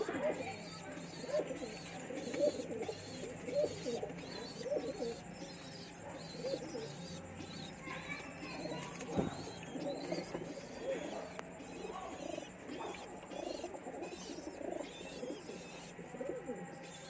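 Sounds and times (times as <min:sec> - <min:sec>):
pigeon cooing: 0:00.0 - 0:17.0.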